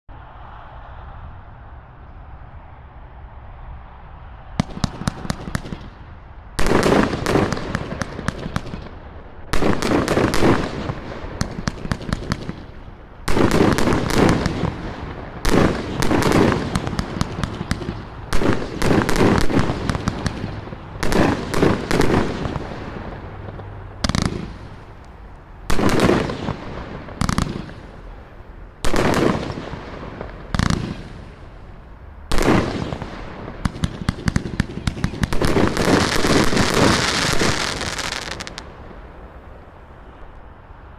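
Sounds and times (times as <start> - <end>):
firework cake pops and bangs: 32.3 - 38.6.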